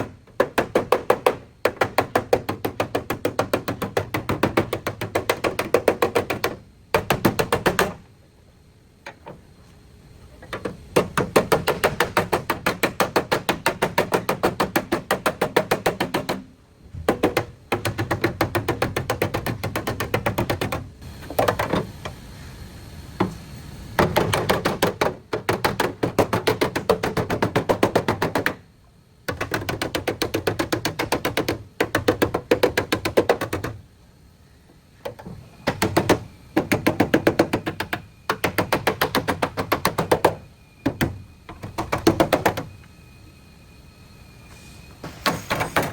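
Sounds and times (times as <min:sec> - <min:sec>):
rapid knocking on car metal: 0:00.0 - 0:08.0, 0:10.6 - 0:21.7, 0:24.0 - 0:28.6, 0:29.3 - 0:33.8, 0:35.6 - 0:42.7.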